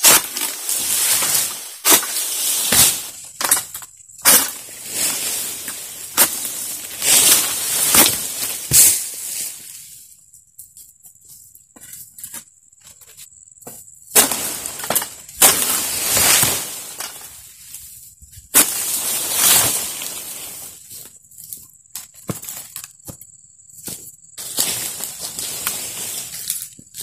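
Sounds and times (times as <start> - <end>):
frond crashing through leaves: 0.0 - 3.6, 4.2 - 9.8, 14.2 - 17.7, 18.5 - 20.9, 24.4 - 26.6
sharp cracks of frond cutting: 0.0 - 3.6, 4.2 - 9.2, 14.2 - 17.4, 18.6 - 20.6.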